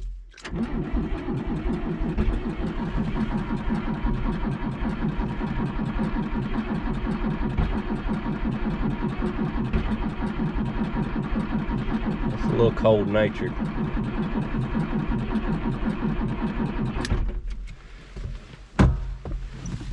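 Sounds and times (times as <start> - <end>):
tractor diesel engine starting: 0.0 - 17.9.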